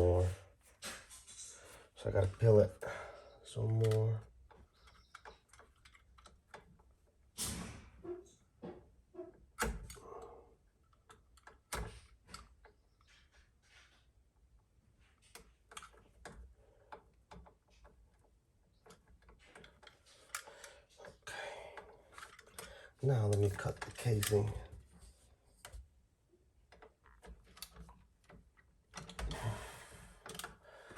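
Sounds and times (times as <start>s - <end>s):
hand tools clicking and knocking: 15.2s - 24.7s.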